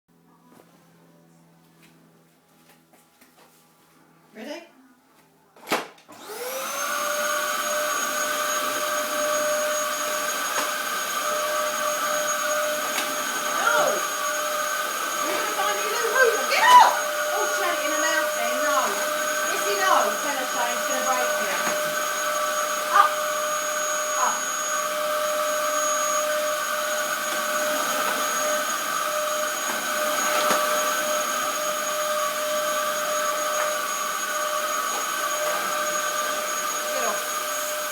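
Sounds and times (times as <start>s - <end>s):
vacuum cleaner motor whining: 6.1s - 37.9s.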